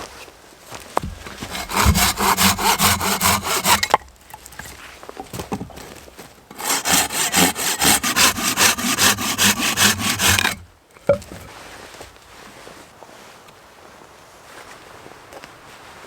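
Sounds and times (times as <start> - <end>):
hand saw cutting wood: 1.0 - 4.6, 6.5 - 11.2.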